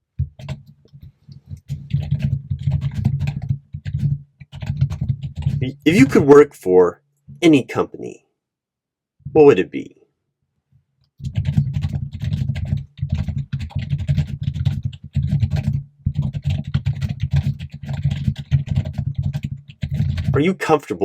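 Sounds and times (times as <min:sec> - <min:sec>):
fast keyboard typing: 0:00.2 - 0:06.4, 0:11.2 - 0:20.9.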